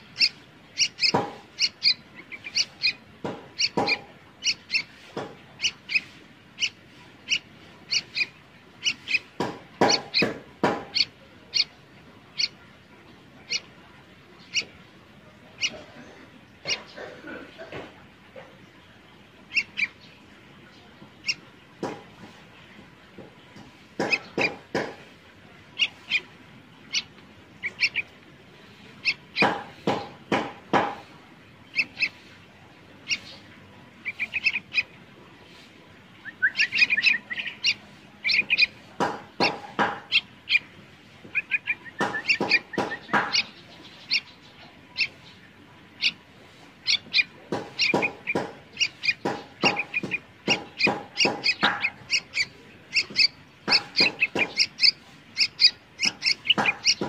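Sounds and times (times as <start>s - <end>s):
animal chirping: 0.1s - 3.0s, 3.6s - 4.9s, 5.6s - 11.7s, 12.3s - 12.6s, 15.6s - 15.8s, 25.8s - 26.3s, 26.9s - 28.1s, 28.8s - 29.6s, 33.0s - 33.4s, 36.2s - 40.7s, 41.3s - 45.4s, 46.8s - 57.0s.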